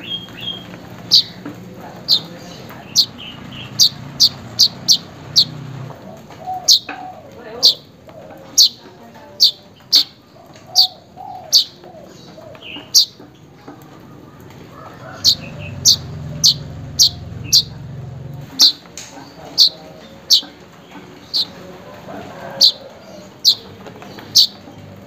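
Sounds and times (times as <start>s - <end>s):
weaver bird chirping: 0.0s - 7.9s, 8.5s - 8.8s, 9.4s - 13.2s, 14.7s - 20.6s, 21.2s - 21.6s, 22.5s - 23.6s, 24.2s - 24.6s.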